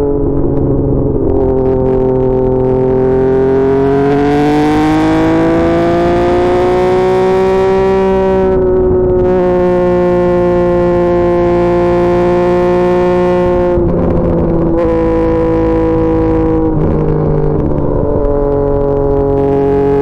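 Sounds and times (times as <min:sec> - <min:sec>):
motorcycle engine droning: 0:00.0 - 0:20.0.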